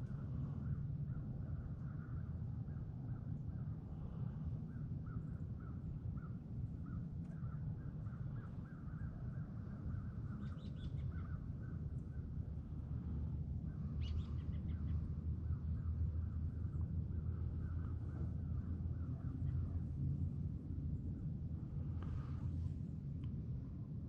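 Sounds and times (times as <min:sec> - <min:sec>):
steady low rumble: 0:11.1 - 0:24.0.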